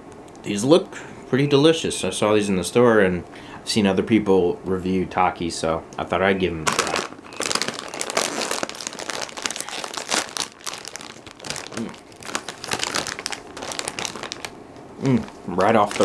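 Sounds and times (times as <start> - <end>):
chip bag crinkling: 6.6 - 16.0.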